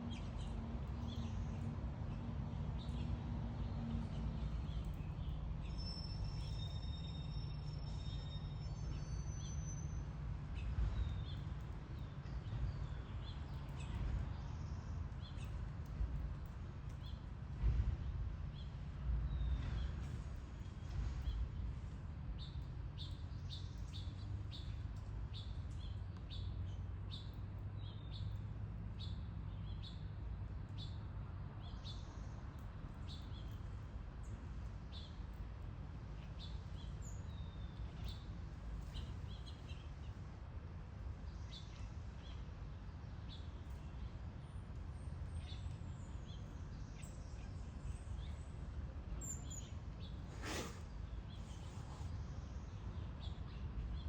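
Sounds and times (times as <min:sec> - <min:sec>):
small birds chirping: 0:22.3 - 0:40.4, 0:41.0 - 0:54.0.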